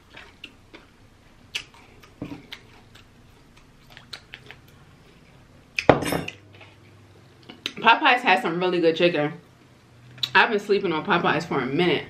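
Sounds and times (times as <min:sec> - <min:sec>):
chewing crispy fried chicken: 0:00.0 - 0:05.4.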